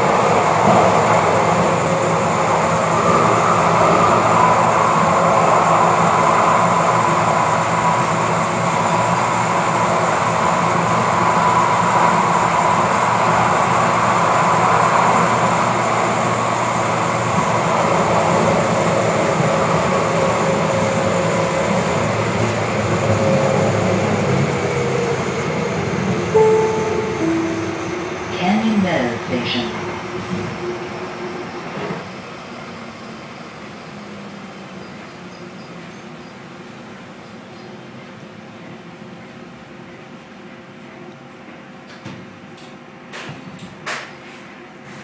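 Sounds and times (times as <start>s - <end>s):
train wheels rumbling on rails: 0.0s - 26.3s.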